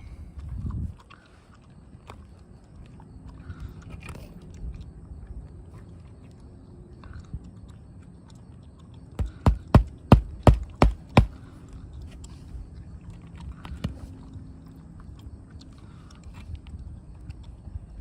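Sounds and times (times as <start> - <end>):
hammer driving roofing nails: 9.2 - 11.4.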